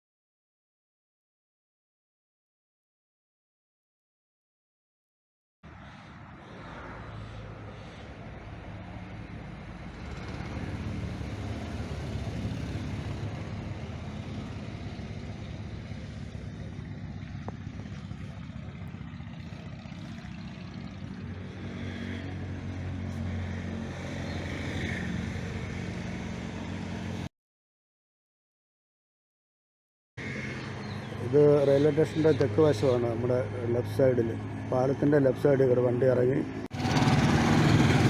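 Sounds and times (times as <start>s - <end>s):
road noise: 5.6s - 27.3s, 30.2s - 38.0s
vehicle engine running: 7.2s - 27.3s, 30.2s - 38.0s.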